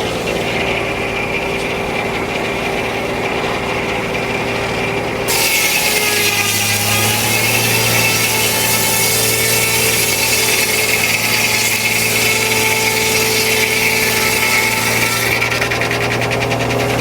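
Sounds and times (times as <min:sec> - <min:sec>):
saw blade rasping through log: 0:00.0 - 0:17.0
sawmill droning: 0:00.0 - 0:17.0.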